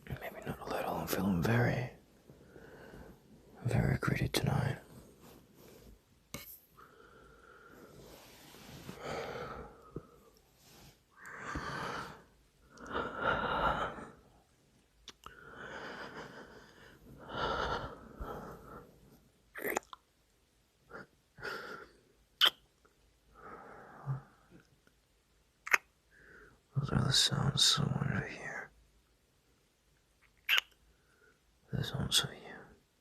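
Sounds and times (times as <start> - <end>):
man breathing heavily: 2.3 - 3.3, 6.8 - 10.4, 11.1 - 14.1, 15.4 - 18.9
wet mouth and kissing sounds: 22.4 - 22.7, 25.6 - 25.9, 30.2 - 30.8.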